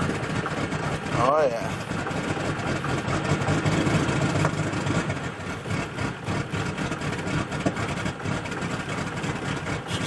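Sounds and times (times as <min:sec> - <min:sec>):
diesel engine running unevenly: 0:00.0 - 0:10.0.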